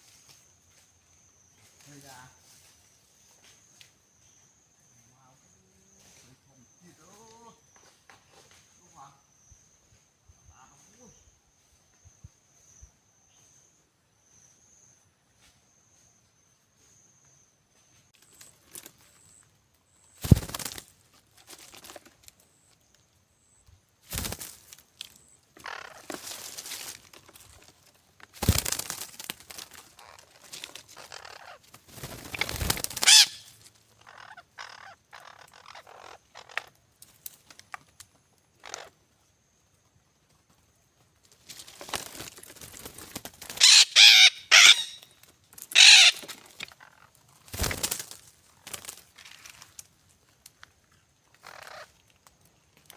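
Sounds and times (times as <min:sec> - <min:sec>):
parrots squawking: 0:25.6 - 0:26.0, 0:31.0 - 0:31.6, 0:33.0 - 0:36.7, 0:43.6 - 0:45.1, 0:45.7 - 0:47.1, 0:51.4 - 0:51.9.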